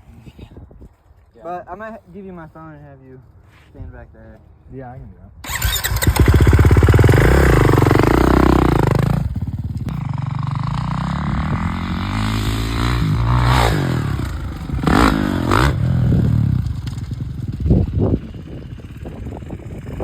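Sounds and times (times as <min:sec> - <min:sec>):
dirt bike engine revving: 0:05.5 - 0:20.0.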